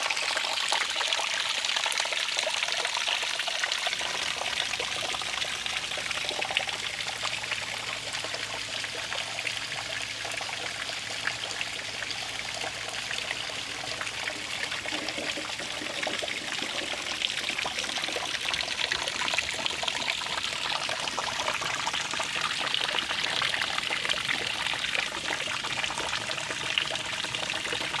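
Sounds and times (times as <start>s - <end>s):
stream trickling and splashing: 0.0s - 28.0s.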